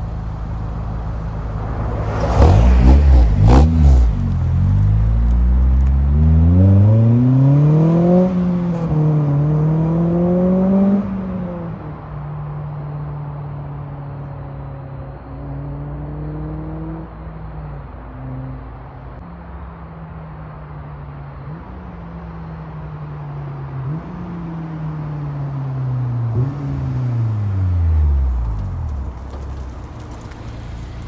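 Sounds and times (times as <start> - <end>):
car engine revving through gears: 1.9 - 11.2.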